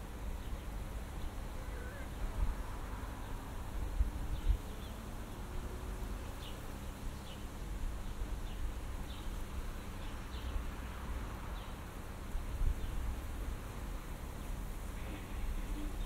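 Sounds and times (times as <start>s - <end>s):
low rumble of wind: 0.0s - 16.0s
small birds chirping: 0.3s - 2.4s, 4.3s - 5.5s, 6.2s - 10.7s, 11.5s - 11.9s.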